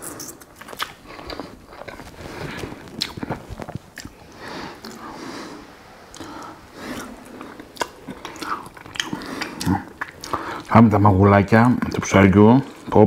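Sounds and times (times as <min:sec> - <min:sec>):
wet chewing and lip smacks: 0:00.0 - 0:02.0, 0:02.6 - 0:04.2, 0:04.8 - 0:05.1, 0:06.1 - 0:10.7.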